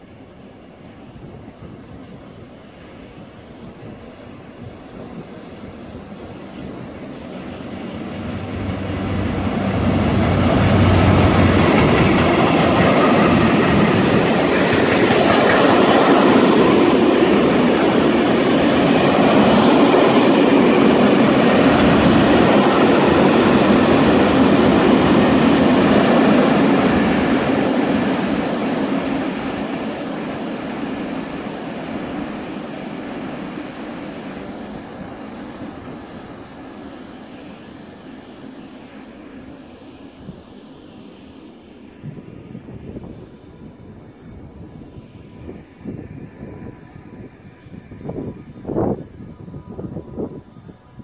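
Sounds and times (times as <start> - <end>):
diesel locomotive engine hum: 0.0 - 51.0
wagons clickety-clack over rails: 11.4 - 16.0.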